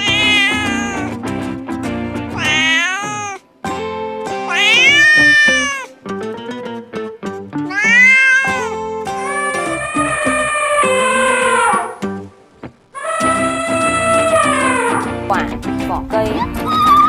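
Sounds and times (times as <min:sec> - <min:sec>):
cat meowing: 0:00.0 - 0:01.2, 0:02.4 - 0:03.5, 0:04.5 - 0:05.9, 0:07.6 - 0:12.0, 0:13.0 - 0:15.3, 0:16.5 - 0:17.0
background music: 0:00.0 - 0:17.0.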